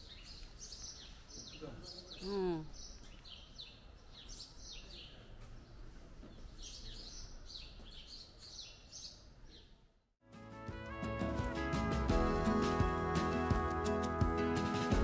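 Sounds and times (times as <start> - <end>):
songbirds chirping: 0.0 - 10.0
music: 10.2 - 15.0.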